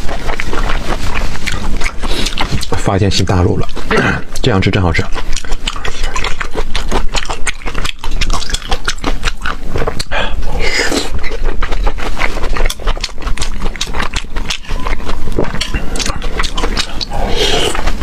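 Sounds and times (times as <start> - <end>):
wet chewing and lip smacking: 0.0 - 18.0
slurp: 15.3 - 18.0.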